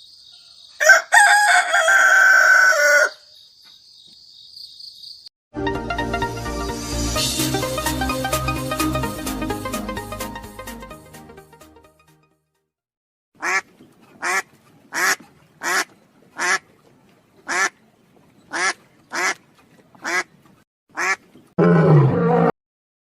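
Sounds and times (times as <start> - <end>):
nasal quack-like animal calls: 13.4 - 16.6, 17.4 - 17.8, 18.5 - 19.4, 20.0 - 20.3, 21.0 - 21.2
rough low animal call: 21.6 - 22.5.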